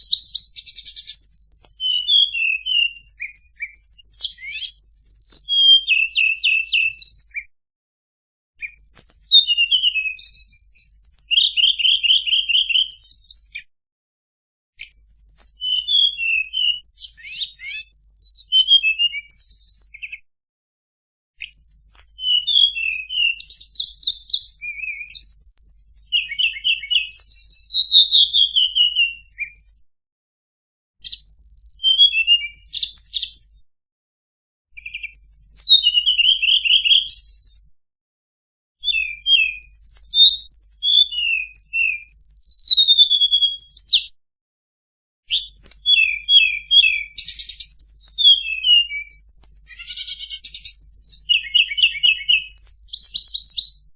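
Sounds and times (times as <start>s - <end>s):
bird chirps trills and whistles: 0.0s - 7.5s, 8.6s - 13.7s, 14.8s - 20.3s, 21.4s - 29.9s, 31.0s - 33.6s, 34.8s - 37.8s, 38.8s - 44.2s, 45.3s - 53.9s.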